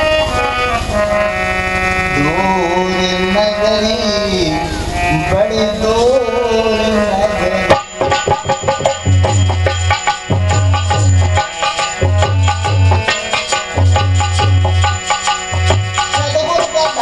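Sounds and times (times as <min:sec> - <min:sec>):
held melodic tones: 0:00.0 - 0:17.0
person singing: 0:02.2 - 0:08.8, 0:16.0 - 0:17.0
hand drum strikes: 0:07.7 - 0:17.0.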